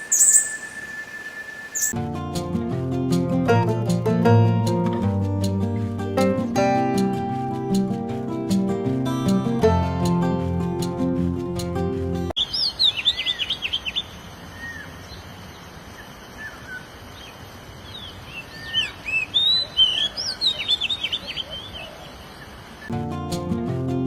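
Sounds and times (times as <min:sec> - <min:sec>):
steady background hiss: 0:00.0 - 0:01.9
songbird chirping: 0:00.0 - 0:02.0, 0:12.4 - 0:22.9.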